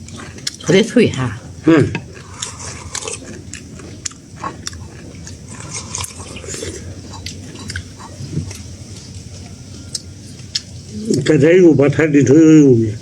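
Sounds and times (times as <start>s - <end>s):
people chewing crisp food: 0.0s - 12.0s.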